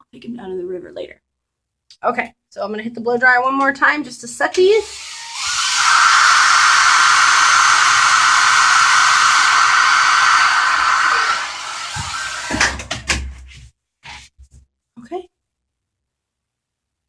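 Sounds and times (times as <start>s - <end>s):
hair dryer blowing: 4.8s - 13.0s.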